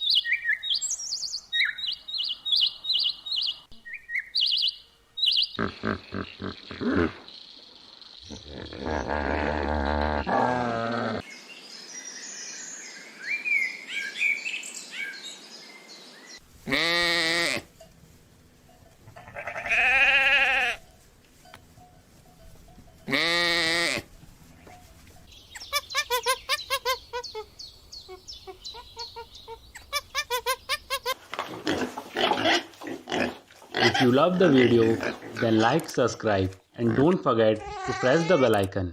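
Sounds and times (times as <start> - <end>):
farm animal bleating: 5.5 - 7.2, 16.6 - 17.9, 18.7 - 35.7, 36.8 - 38.7.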